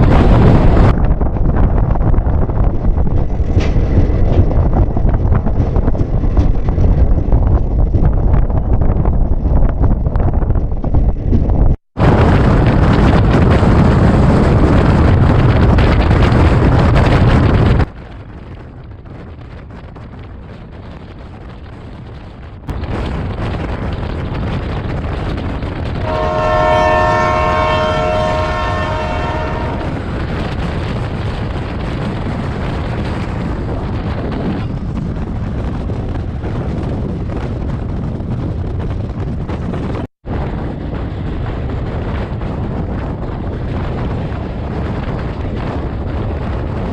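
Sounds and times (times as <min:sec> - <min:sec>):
train rushing rattle: 0:00.0 - 0:46.9
train horn chord: 0:26.0 - 0:30.0.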